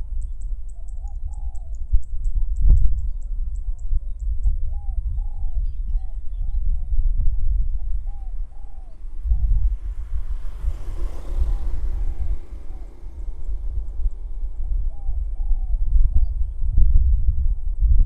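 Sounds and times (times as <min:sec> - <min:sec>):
wind rumble on microphone: 0:00.0 - 0:18.0
dove cooing: 0:07.8 - 0:16.3.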